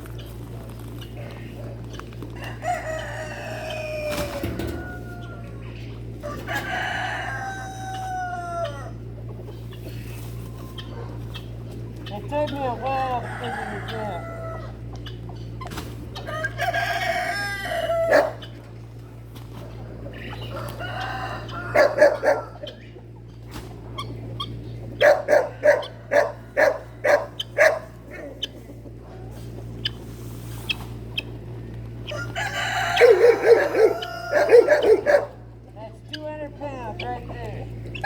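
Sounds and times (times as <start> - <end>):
chickens clucking: 0.0 - 38.0
rooster crowing: 2.4 - 9.1, 13.0 - 14.9, 16.2 - 18.6, 20.3 - 22.8, 32.0 - 35.3.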